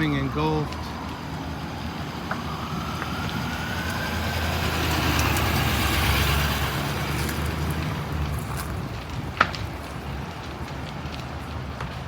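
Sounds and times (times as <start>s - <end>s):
vehicle engine passing: 1.6s - 9.1s.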